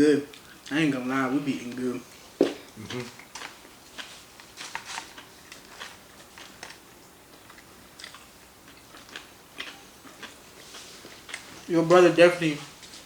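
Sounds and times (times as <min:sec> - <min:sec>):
person eating noodles: 0:02.6 - 0:11.6.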